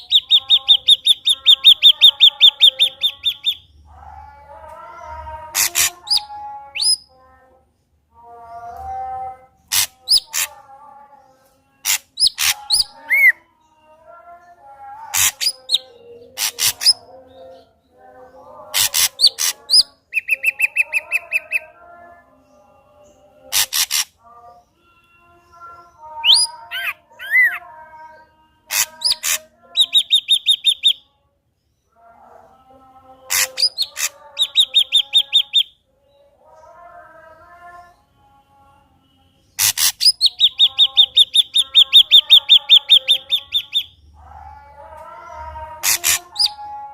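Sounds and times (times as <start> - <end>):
bird song with clicks and whistles: 11.9 - 13.4, 18.8 - 21.7, 28.7 - 31.1, 33.3 - 35.8, 39.6 - 44.0.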